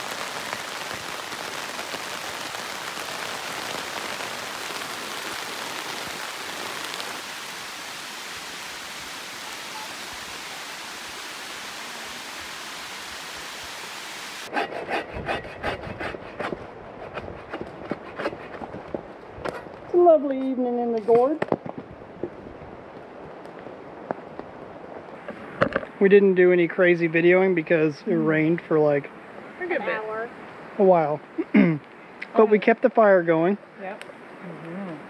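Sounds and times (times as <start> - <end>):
rushing water: 0.0 - 35.0.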